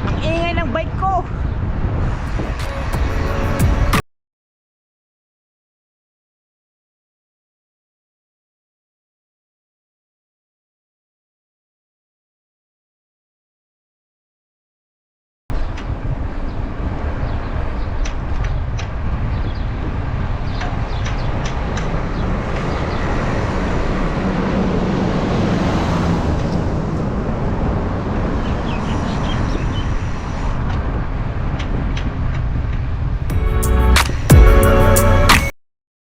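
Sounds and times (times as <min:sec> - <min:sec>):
highway traffic rumble: 0:00.0 - 0:04.0, 0:15.5 - 0:35.5
wind noise: 0:00.0 - 0:04.0, 0:15.5 - 0:35.5
vehicle passing: 0:18.9 - 0:31.5.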